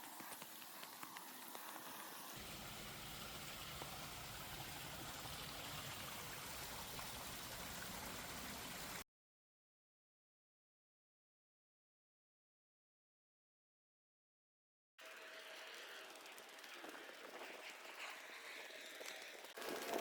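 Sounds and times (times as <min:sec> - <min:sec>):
outdoor ambient hiss: 0:00.0 - 0:09.0.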